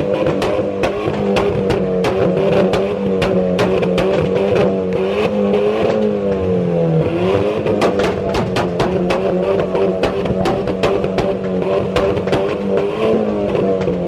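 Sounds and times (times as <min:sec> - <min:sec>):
car engine running: 0:00.0 - 0:14.0
music with drum beat: 0:07.7 - 0:12.8.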